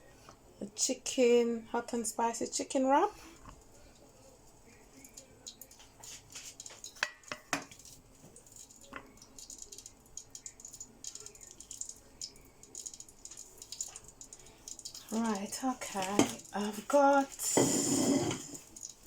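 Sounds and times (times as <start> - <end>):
tortilla wrap rustling: 3.2 - 7.1
kitchenware clicks and knocks: 16.0 - 16.4, 17.6 - 18.7.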